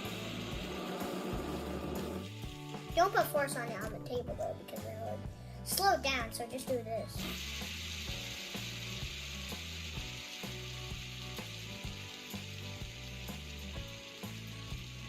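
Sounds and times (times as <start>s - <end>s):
fidget spinner bearing hiss: 7.2s - 15.0s.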